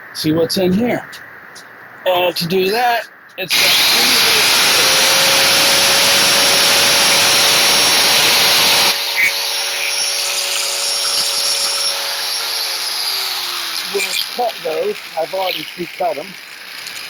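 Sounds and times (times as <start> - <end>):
grinding metal hiss: 3.3 - 17.0
power tool motor whine: 3.5 - 17.0.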